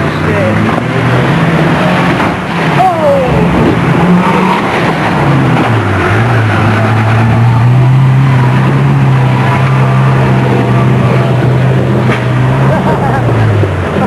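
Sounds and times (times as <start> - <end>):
car engine running hard: 0.0 - 14.0.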